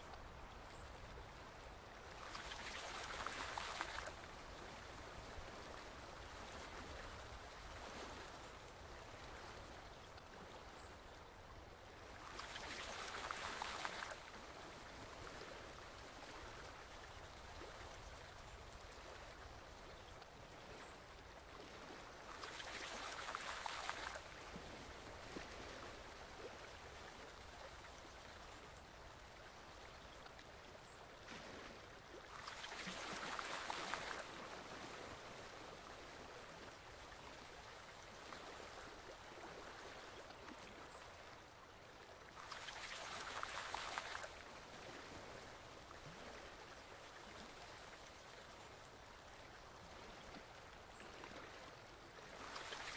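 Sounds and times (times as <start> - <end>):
small stream flowing: 0.0 - 52.9.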